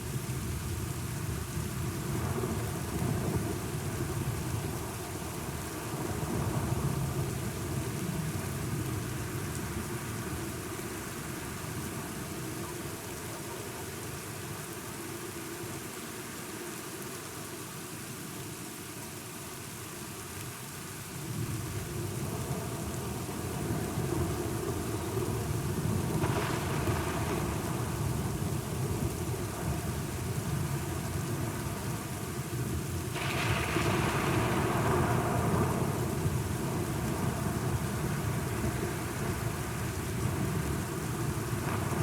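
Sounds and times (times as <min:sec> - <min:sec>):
steady rain: 0:00.0 - 0:42.0
rolling thunder: 0:25.8 - 0:29.9, 0:33.1 - 0:39.6.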